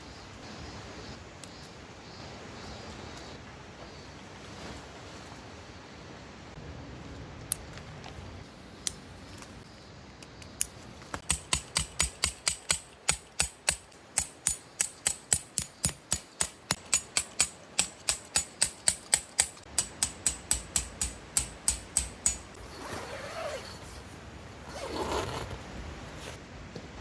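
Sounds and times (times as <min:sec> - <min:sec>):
hammer striking tent pegs: 0:11.2 - 0:22.6.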